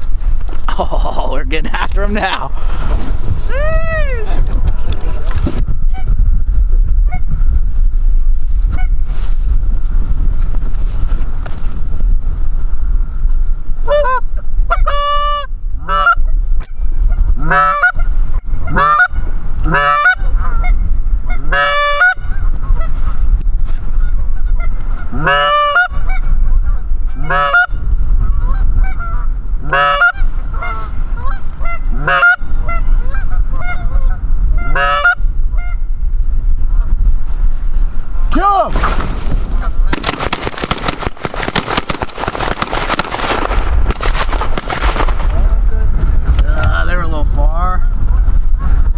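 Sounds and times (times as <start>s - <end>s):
low wind rumble on microphone: 0.0s - 48.9s
geese honking and clucking: 13.9s - 16.2s, 17.4s - 18.0s, 18.6s - 19.1s, 19.7s - 22.9s, 24.1s - 35.8s.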